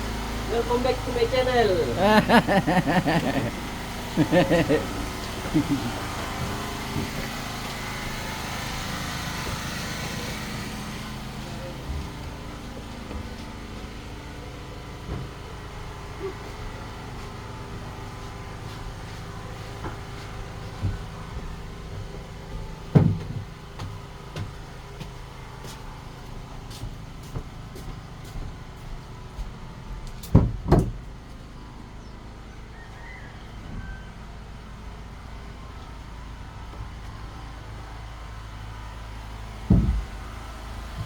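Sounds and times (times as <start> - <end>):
low motor hum: 0.0 - 41.0
heavy knocks: 39.7 - 40.2.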